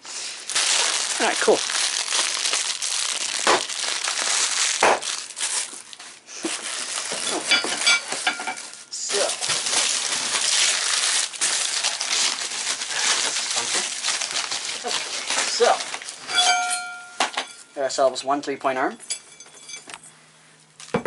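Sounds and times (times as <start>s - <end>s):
packing material rustling and crinkling: 0.0s - 17.6s.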